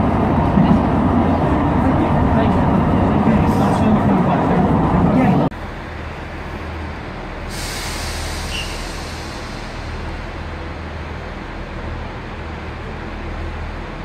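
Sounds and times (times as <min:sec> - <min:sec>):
train rumble and hum: 0:00.0 - 0:14.0
hiss: 0:07.5 - 0:10.1.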